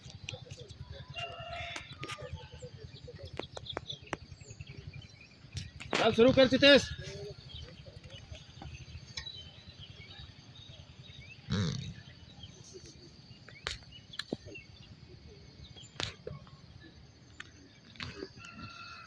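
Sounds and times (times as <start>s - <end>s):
horse snorting: 11.5s - 12.1s.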